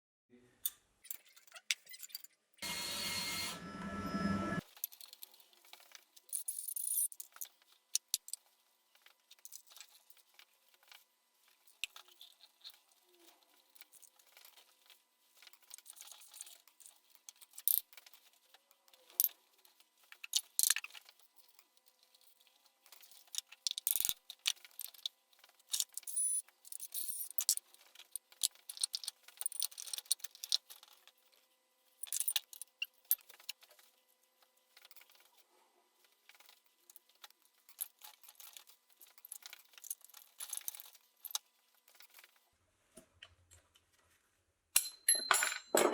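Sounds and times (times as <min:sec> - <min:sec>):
metal parts and tools clinking: 0:25.7 - 0:30.9, 0:37.6 - 0:41.4, 0:44.8 - 0:45.9.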